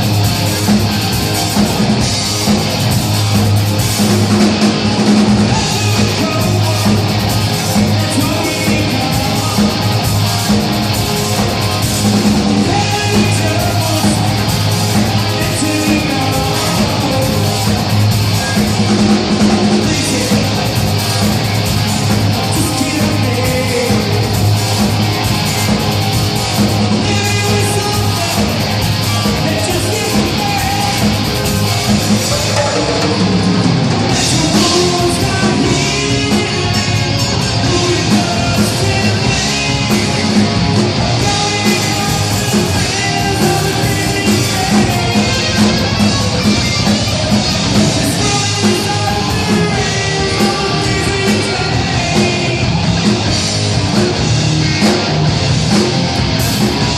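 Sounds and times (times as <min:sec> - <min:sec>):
heavy rock music with singing: 0:00.0 - 0:56.9.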